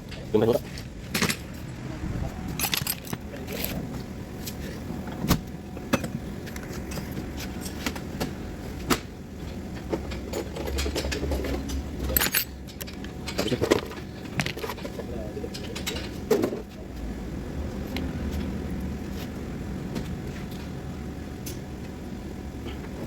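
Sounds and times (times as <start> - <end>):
low hum: 0.0 - 5.9
steady low rumble: 0.0 - 6.6.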